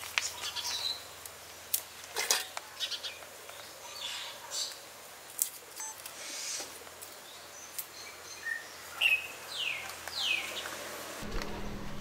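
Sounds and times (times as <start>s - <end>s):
small birds chirping: 0.2s - 1.3s, 2.6s - 4.9s, 5.8s - 10.9s.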